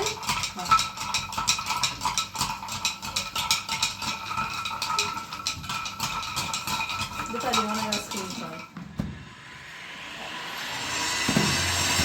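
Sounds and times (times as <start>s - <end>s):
dishes and utensils clattering: 0.0s - 8.9s.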